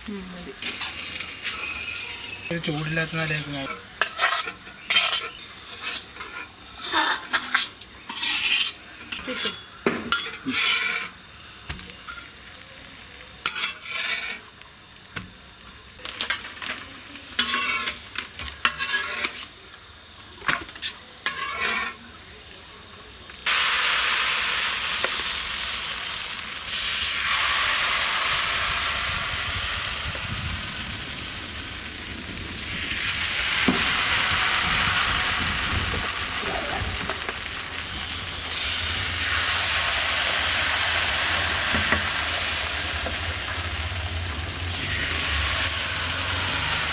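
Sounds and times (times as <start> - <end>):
loud steady hiss: 0.0 - 6.2, 23.4 - 46.9
light sizzling: 0.0 - 19.7, 23.4 - 46.9
metal spoon scraping pot: 3.6 - 11.2.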